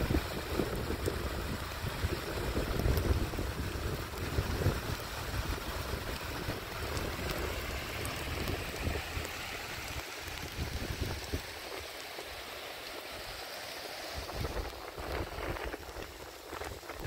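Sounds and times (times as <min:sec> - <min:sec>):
steady rain hiss: 0:00.0 - 0:17.0
wind rumbling on microphone: 0:00.0 - 0:17.0.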